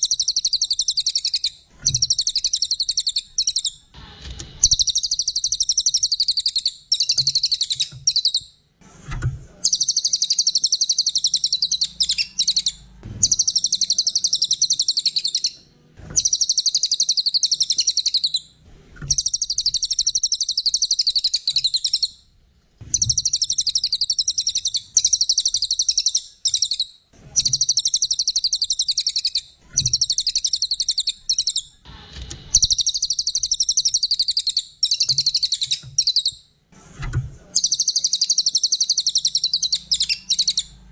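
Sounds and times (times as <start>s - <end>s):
songbird singing high trills: 9.7s - 15.6s, 19.1s - 22.2s, 22.9s - 31.7s, 37.6s - 40.8s.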